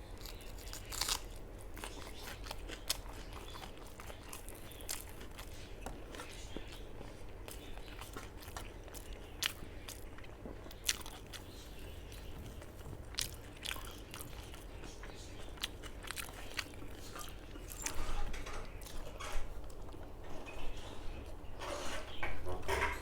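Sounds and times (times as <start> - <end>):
person chewing crunchy food: 0.0 - 21.5.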